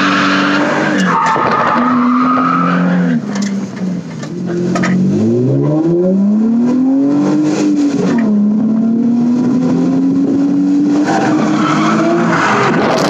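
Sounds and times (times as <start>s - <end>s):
car engine revving up: 4.3s - 13.0s.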